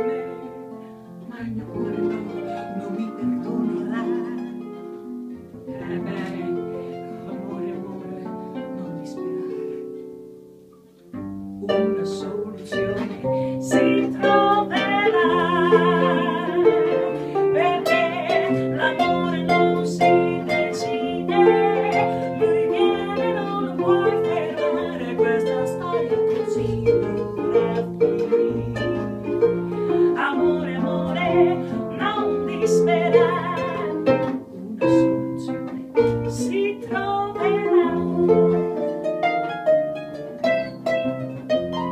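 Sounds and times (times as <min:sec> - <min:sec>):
soft plucked strings: 0:00.0 - 0:41.9.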